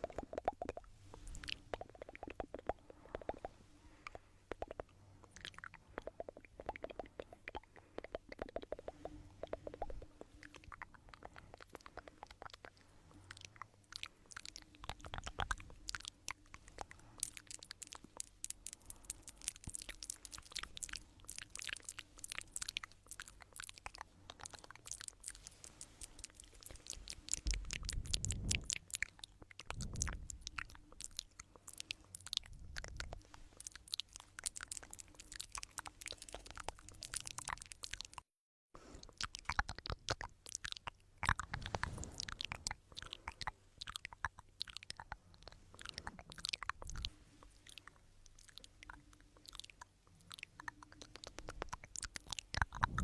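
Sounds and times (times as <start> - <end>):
rapid crackling and clicking: 0.0 - 38.3, 39.0 - 53.0.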